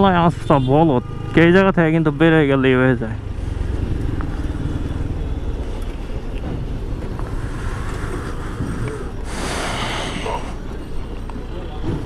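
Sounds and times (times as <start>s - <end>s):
motorcycle engine running: 2.9s - 9.2s.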